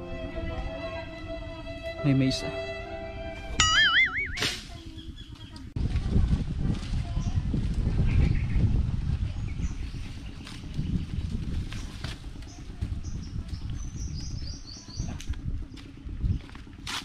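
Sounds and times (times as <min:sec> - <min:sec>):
low rumble: 0:05.8 - 0:17.0
small bird chirping: 0:09.4 - 0:16.6.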